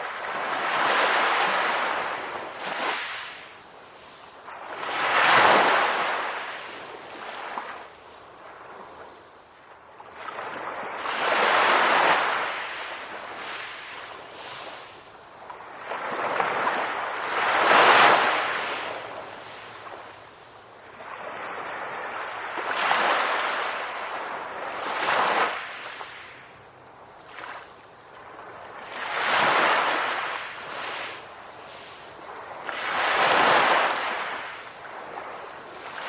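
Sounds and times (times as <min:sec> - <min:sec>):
waves breaking on shore: 0:00.0 - 0:36.0.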